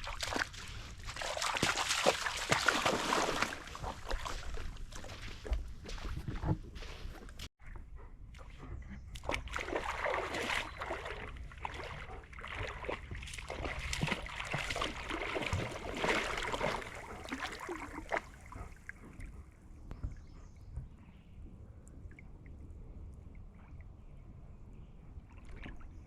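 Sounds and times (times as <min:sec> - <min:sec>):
dog splashing in water: 0:00.0 - 0:06.5, 0:09.2 - 0:18.9.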